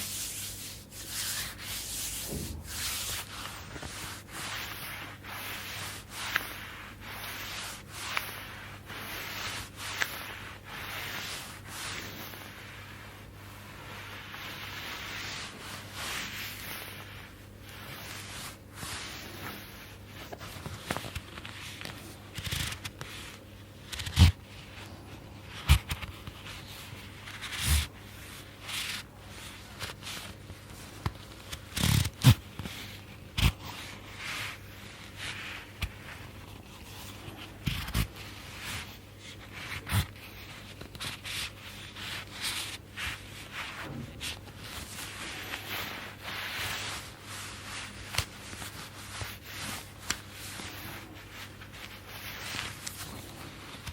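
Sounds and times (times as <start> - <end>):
hand strokes on oiled skin: 0.0 - 22.3, 44.5 - 53.9
fabric rustling and scraping: 0.0 - 53.9.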